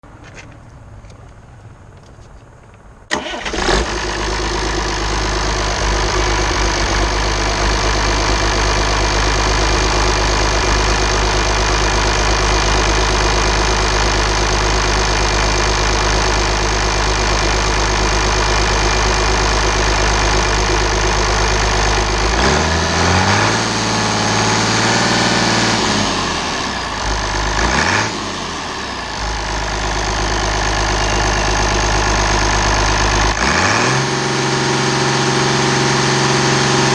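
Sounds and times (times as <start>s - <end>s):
diesel engine idling and revving: 0.0s - 36.9s.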